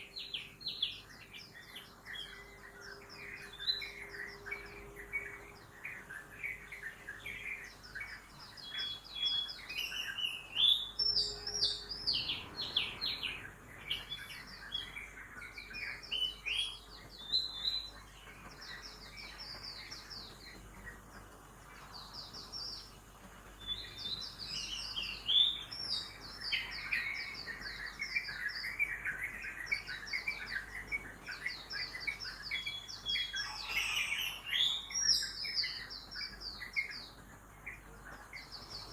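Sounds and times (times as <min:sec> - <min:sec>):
birds chirping and trilling: 0:00.0 - 0:38.9
faint city traffic hum: 0:10.6 - 0:15.7.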